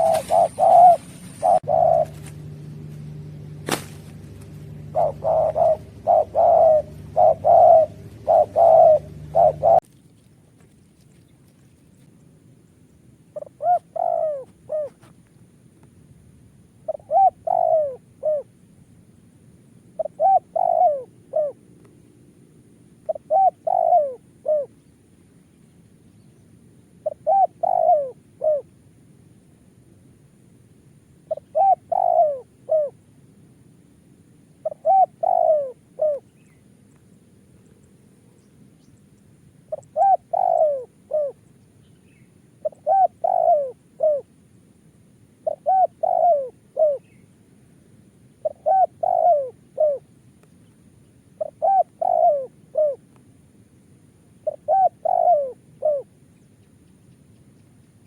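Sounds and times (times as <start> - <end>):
dove cooing: 0.0 - 9.9, 13.3 - 15.1, 16.8 - 18.6, 19.9 - 21.7, 23.0 - 24.8, 27.0 - 28.7, 31.2 - 33.0, 34.6 - 36.6, 39.6 - 41.5, 42.1 - 44.4, 45.4 - 47.2, 48.4 - 50.1, 51.4 - 53.1, 54.4 - 56.2.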